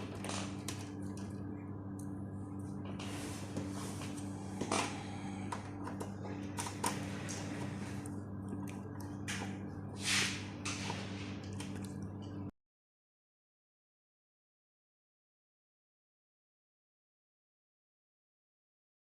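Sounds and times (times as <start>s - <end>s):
electrical mains hum: 0.0s - 12.6s.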